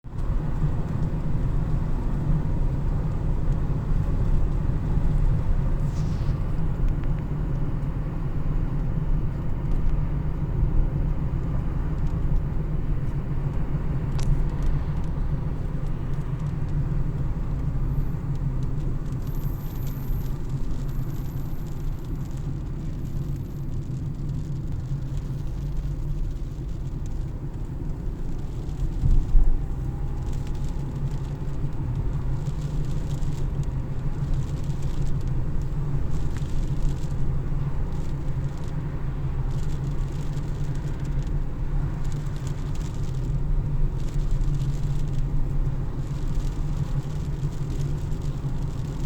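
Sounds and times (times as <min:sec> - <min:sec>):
car engine and tyre rumble: 0:00.0 - 0:49.0
faint light ticks: 0:15.8 - 0:43.4, 0:44.0 - 0:49.0.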